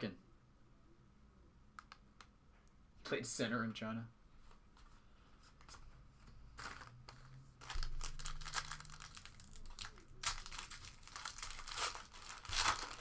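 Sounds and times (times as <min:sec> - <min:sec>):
plastic wrapper crinkling and tearing: 0:06.6 - 0:13.0.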